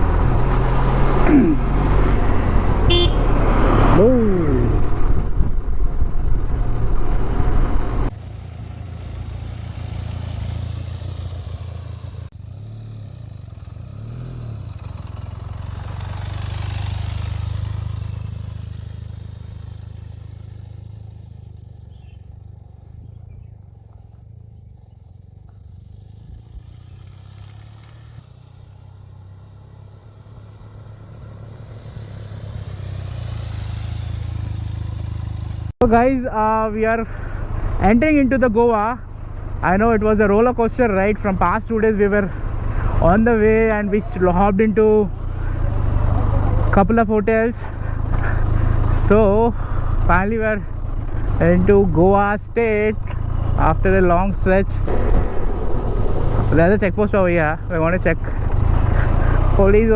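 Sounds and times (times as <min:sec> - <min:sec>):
motorcycle engine humming: 0:00.0 - 0:59.9
wind rush: 0:02.0 - 0:08.1, 0:54.8 - 0:57.1.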